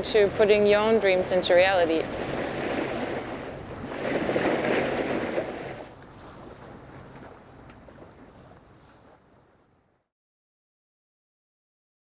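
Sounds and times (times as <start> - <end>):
ocean waves: 0.0 - 9.4
wind over water: 0.0 - 10.1.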